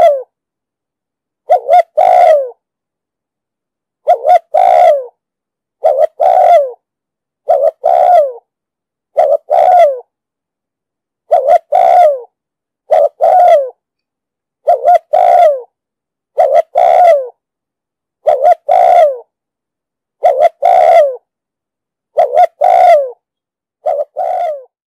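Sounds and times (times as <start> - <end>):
dove cooing: 0.0 - 0.3, 1.5 - 2.6, 4.0 - 5.2, 5.8 - 6.8, 7.4 - 8.4, 9.2 - 10.1, 11.3 - 12.3, 12.9 - 13.8, 14.6 - 15.7, 16.4 - 17.4, 18.2 - 19.3, 20.2 - 21.2, 22.2 - 23.2, 23.8 - 24.8.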